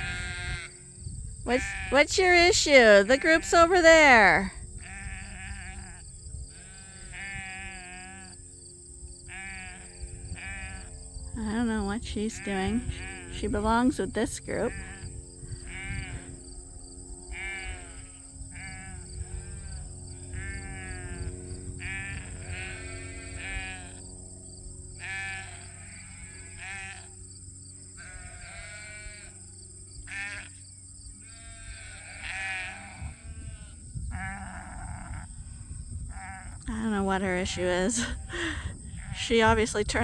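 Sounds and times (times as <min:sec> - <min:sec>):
sheep bleating: 0:00.0 - 0:00.8, 0:01.5 - 0:08.3, 0:09.3 - 0:10.9, 0:15.7 - 0:16.3, 0:17.3 - 0:24.0, 0:25.0 - 0:27.2, 0:28.0 - 0:29.4, 0:30.1 - 0:30.6, 0:31.2 - 0:35.3, 0:36.1 - 0:36.6, 0:37.6 - 0:39.2.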